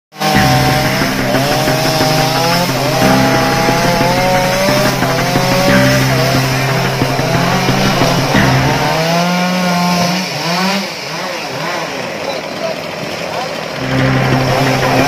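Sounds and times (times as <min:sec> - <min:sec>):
chainsaw cutting wood: 0:00.2 - 0:12.1.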